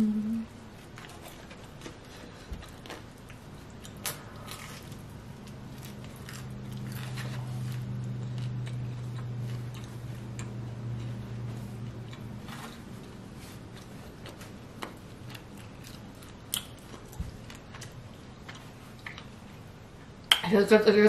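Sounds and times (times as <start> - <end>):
low steady hum: 0.0 - 21.0
biting and chewing pizza: 0.8 - 20.2.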